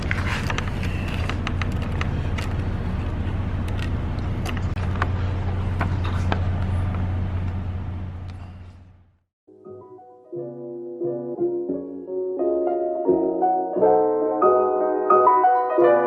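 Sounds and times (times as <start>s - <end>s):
truck engine droning: 0.0s - 9.3s.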